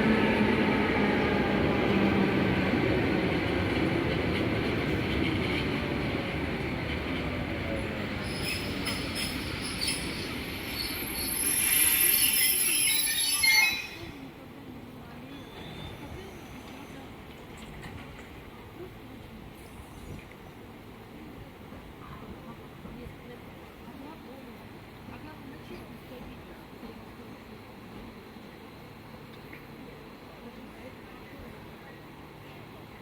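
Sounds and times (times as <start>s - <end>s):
train wheel squeal: 8.2s - 14.2s, 15.3s - 17.1s.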